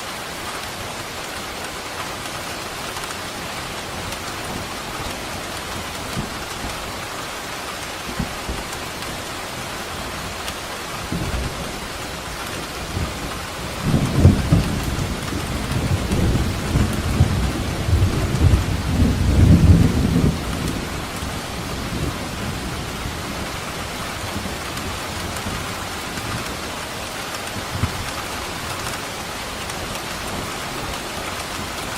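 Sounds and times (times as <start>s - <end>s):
heavy rain: 0.0s - 31.9s
rolling thunder: 11.1s - 23.6s.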